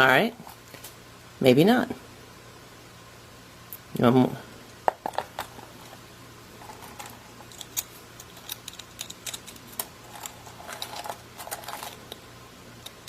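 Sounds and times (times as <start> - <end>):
nuts and shells rattling: 6.6 - 12.2.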